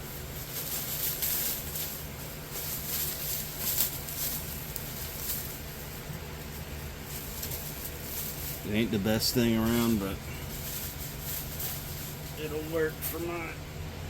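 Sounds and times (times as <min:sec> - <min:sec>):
packaging rustling: 0:00.0 - 0:08.8.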